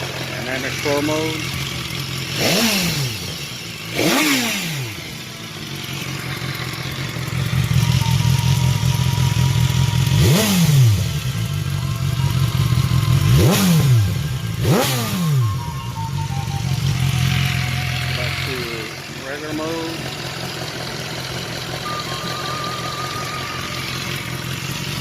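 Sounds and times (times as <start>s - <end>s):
motorcycle engine idling: 0.0s - 25.0s
motorcycle throttle blips: 5.6s - 19.1s.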